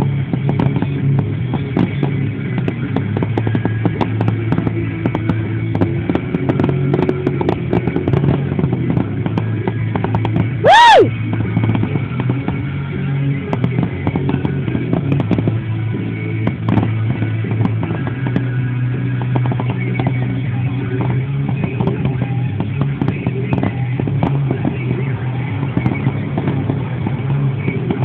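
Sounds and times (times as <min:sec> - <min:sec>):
fireworks bangs and crackles: 0:00.0 - 0:28.0
rock music from a radio: 0:00.0 - 0:28.0
firework whistle: 0:10.6 - 0:11.2.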